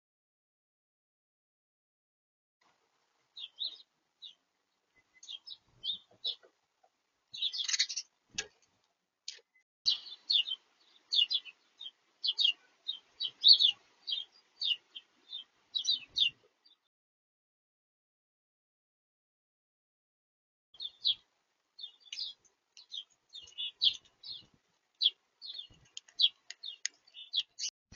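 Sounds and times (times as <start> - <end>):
small songbirds chirping: 3.3 - 16.9, 20.8 - 27.7.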